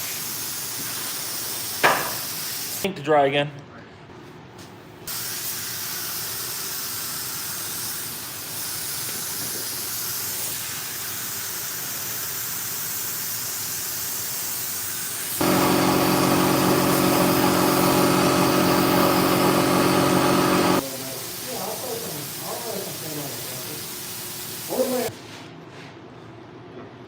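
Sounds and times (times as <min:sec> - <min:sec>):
paint spray gun hissing: 0:05.1 - 0:25.1
steady motor hum: 0:15.4 - 0:20.8.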